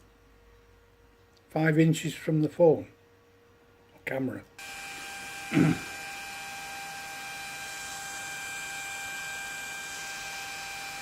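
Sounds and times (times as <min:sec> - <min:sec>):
electric fan running: 0:04.6 - 0:11.0.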